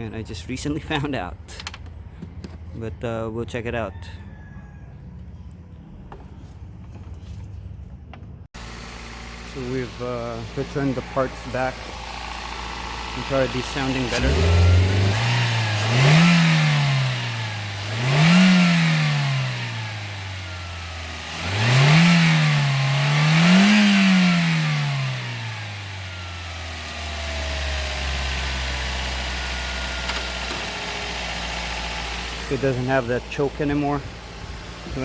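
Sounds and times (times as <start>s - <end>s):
car engine revving: 8.6s - 35.0s.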